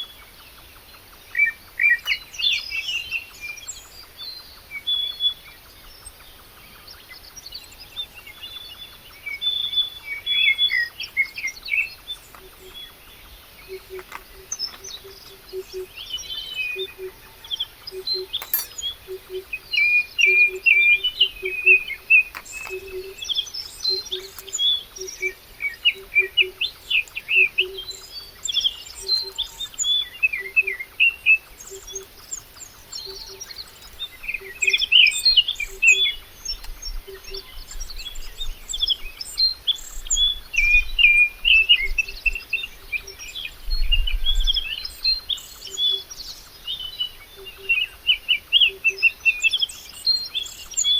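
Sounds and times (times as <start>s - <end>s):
birds chirping: 1.2s - 3.6s, 8.3s - 40.4s.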